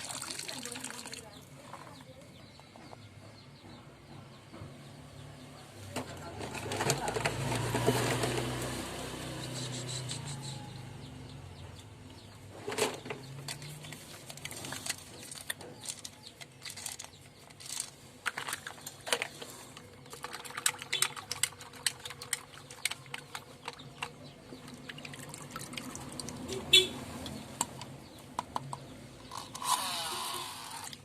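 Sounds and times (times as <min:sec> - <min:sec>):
plastic toy cars clattering: 0:05.9 - 0:08.8, 0:12.5 - 0:26.8, 0:27.6 - 0:31.0.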